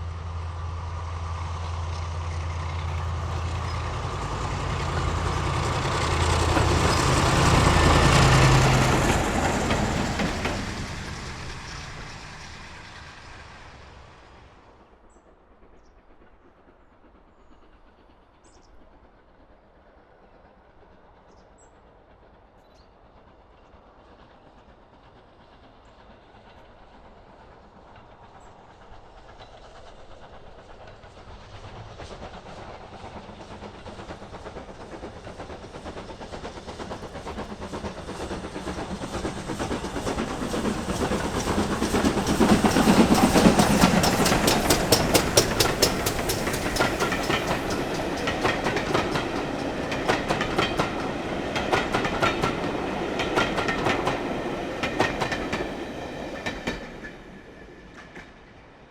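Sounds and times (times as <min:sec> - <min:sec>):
train passing: 0:00.0 - 0:58.9
wheels clacking over rail joints: 0:01.6 - 0:14.4, 0:30.9 - 0:57.4.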